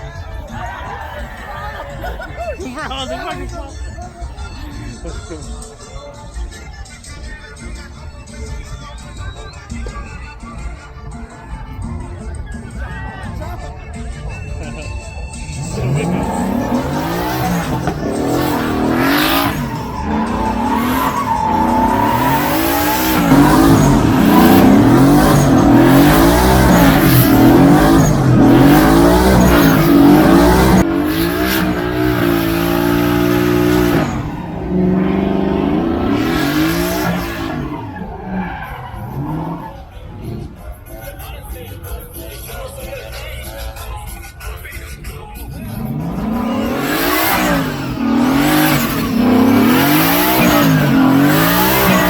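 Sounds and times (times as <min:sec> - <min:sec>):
truck engine revving: 0:12.2 - 0:41.9, 0:44.6 - 0:52.0
tyres squealing: 0:15.2 - 0:40.8, 0:45.4 - 0:52.0.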